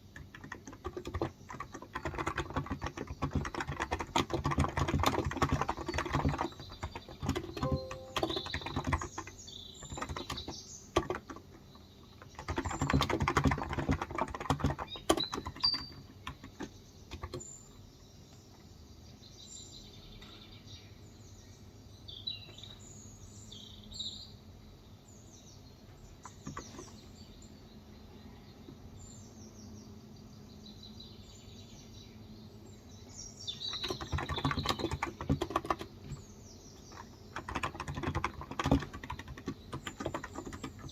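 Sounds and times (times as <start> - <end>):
keyboard typing: 0.0 - 11.6, 12.2 - 17.5, 33.7 - 40.9
birds chirping: 0.8 - 18.6.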